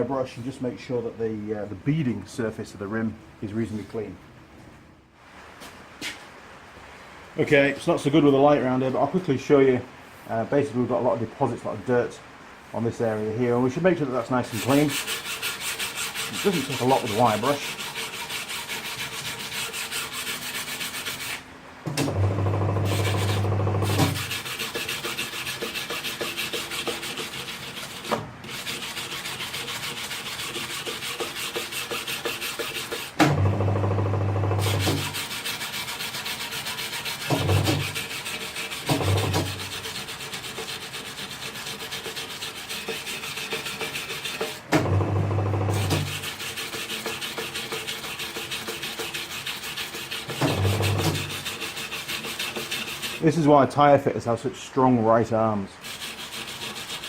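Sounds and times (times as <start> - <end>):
wire brush scrubbing metal rim: 13.0 - 21.4, 22.5 - 33.2, 34.6 - 44.7, 45.7 - 53.9, 55.8 - 57.0.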